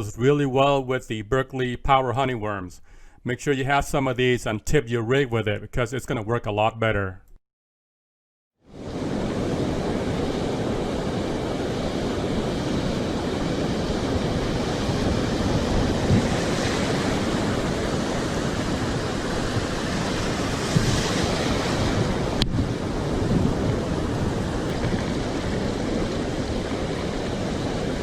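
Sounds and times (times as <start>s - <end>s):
ocean surf breaking: 8.7s - 28.0s
wind rumbling on microphone: 8.7s - 28.0s.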